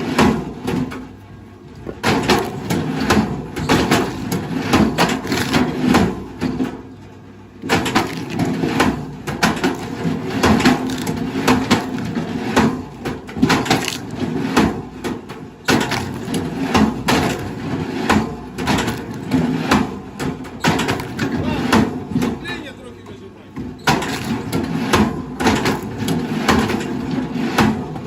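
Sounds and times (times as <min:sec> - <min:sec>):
wood cracking and splintering: 0:01.8 - 0:06.8, 0:07.6 - 0:22.5, 0:23.9 - 0:28.0.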